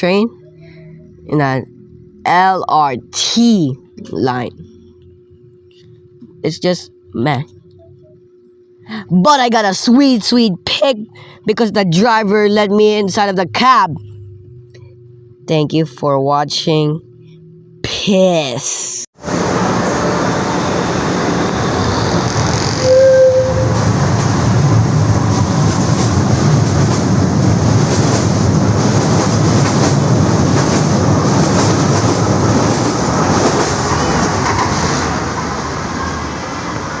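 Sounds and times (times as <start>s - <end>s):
brief tone: 7.5s - 8.8s, 20.5s - 23.7s
train wheels rumbling on rails: 19.2s - 37.0s.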